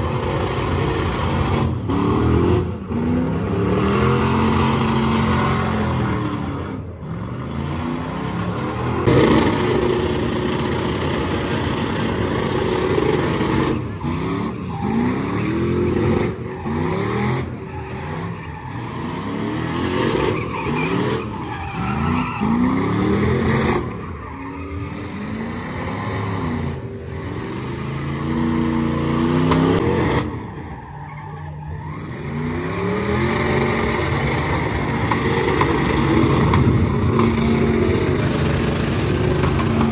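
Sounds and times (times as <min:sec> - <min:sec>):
vehicle engine revving hard: 0:00.0 - 0:08.2.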